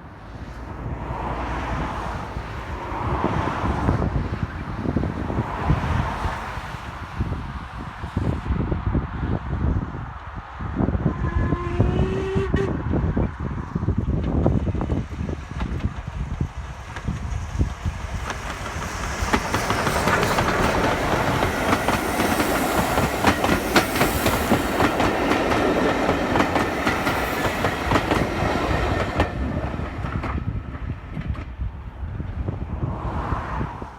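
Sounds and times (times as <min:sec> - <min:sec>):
train wheels clickety-clack: 0:13.9 - 0:31.7.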